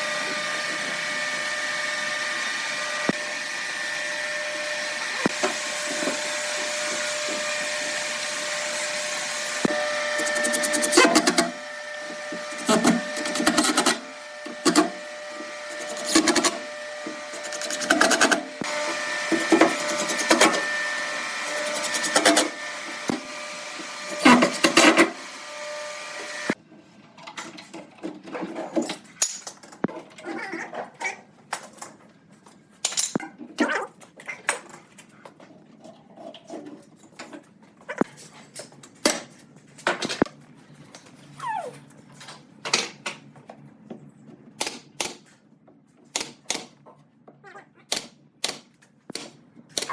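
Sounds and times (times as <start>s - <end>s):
power tool cutting wood: 0.0s - 26.6s.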